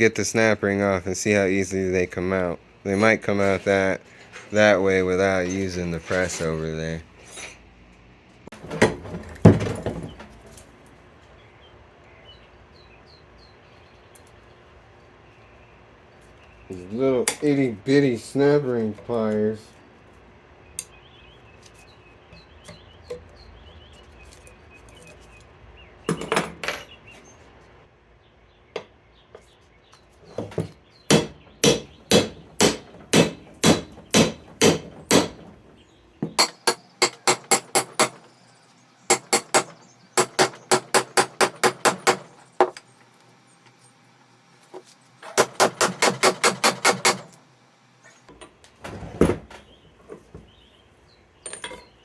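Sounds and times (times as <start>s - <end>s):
hammer striking metal: 31.1s - 35.5s, 36.3s - 38.3s, 39.1s - 42.3s, 45.4s - 47.4s.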